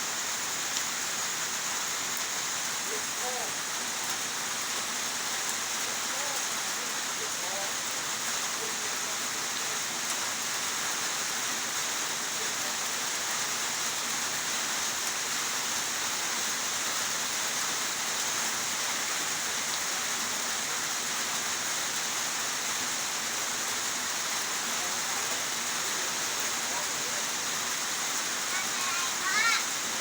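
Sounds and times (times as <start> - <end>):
heavy steady rainfall: 0.0 - 30.0.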